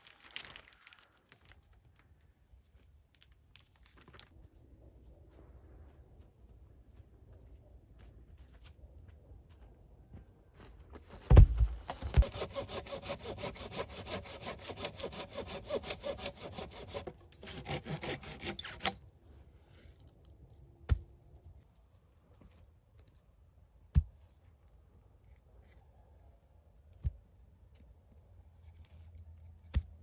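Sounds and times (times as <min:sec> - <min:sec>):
thump: 0:11.2 - 0:12.3
sharp knocks: 0:11.3 - 0:12.4
hand saw cutting wood: 0:11.8 - 0:19.0.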